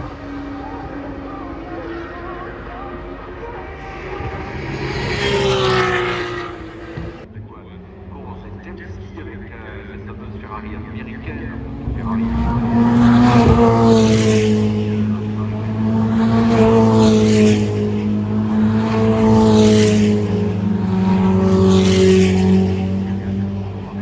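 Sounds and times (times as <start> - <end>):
race cars passing at speed: 0.0 - 24.0
steady low drone: 2.3 - 7.3.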